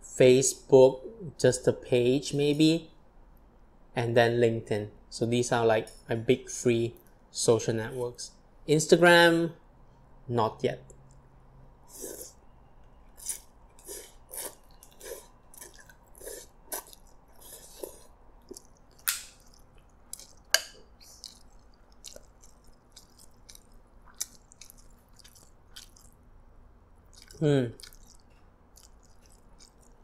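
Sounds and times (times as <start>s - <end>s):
chewing soft noodles: 11.9s - 26.3s, 27.0s - 30.0s.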